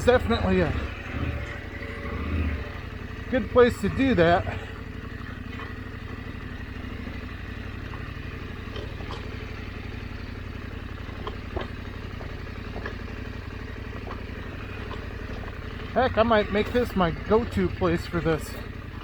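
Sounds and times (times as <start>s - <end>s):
motorcycle engine at low revs: 0.0s - 19.0s.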